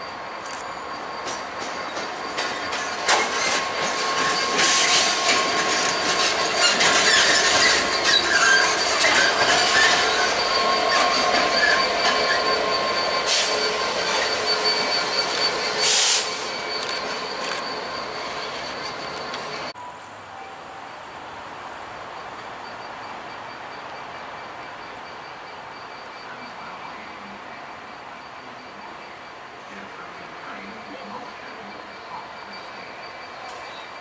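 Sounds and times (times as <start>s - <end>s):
train wheels squealing: 0.0s - 21.0s, 22.2s - 34.0s
train rumble: 0.0s - 34.0s
loud hiss: 13.2s - 16.6s.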